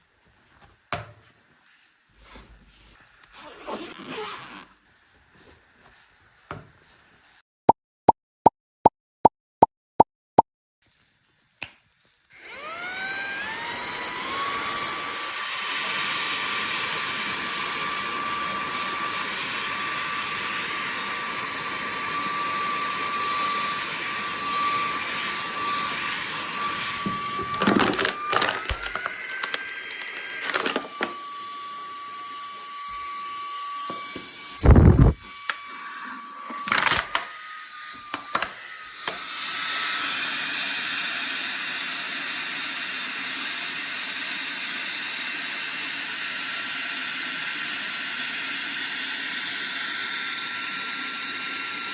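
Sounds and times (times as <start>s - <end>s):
handheld vacuum motor whine: 12.3s - 51.9s
loud handling thump: 34.6s - 35.2s.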